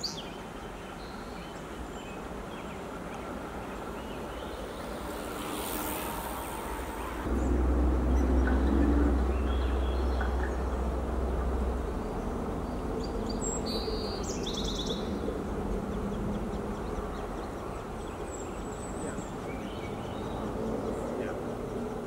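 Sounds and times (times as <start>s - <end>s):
low background rumble: 6.0s - 18.4s.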